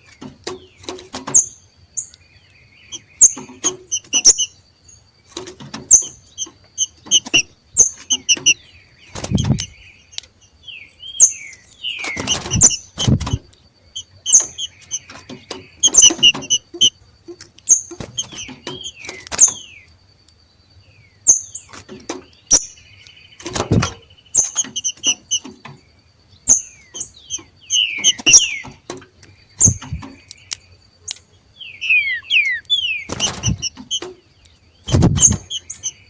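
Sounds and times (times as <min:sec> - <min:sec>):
birds giving harsh chip calls: 0:02.8 - 0:04.6, 0:05.7 - 0:10.3, 0:11.2 - 0:17.0, 0:17.7 - 0:19.6, 0:23.4 - 0:25.6, 0:26.5 - 0:28.8, 0:29.6 - 0:34.2, 0:34.8 - 0:36.0
dull thumps: 0:12.2 - 0:13.5, 0:23.5 - 0:24.0, 0:33.1 - 0:34.1, 0:34.9 - 0:35.9.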